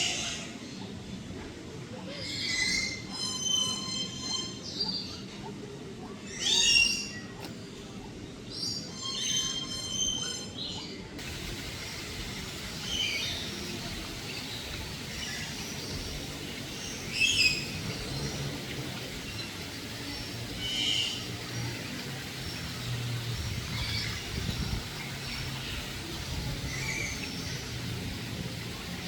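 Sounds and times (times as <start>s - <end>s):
low background noise: 0.0s - 29.0s
birds calling: 2.1s - 29.0s.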